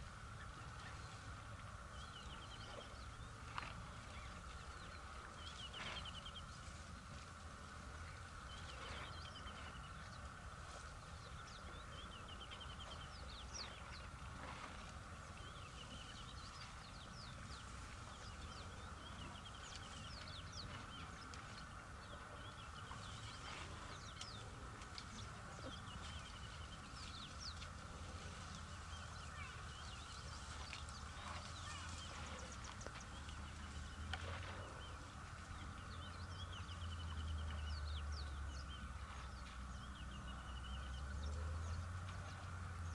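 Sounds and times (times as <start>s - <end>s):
steady high hum: 0.0s - 42.9s
birds chirping and trilling: 15.1s - 42.9s.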